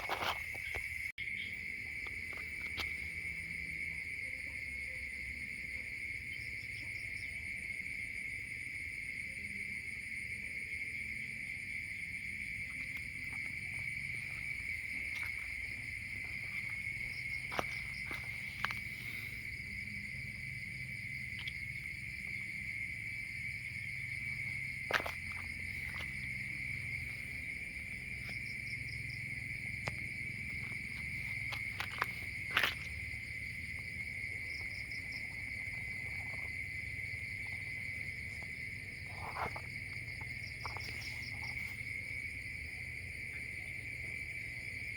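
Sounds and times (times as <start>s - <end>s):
insects trilling: 0.0s - 44.9s.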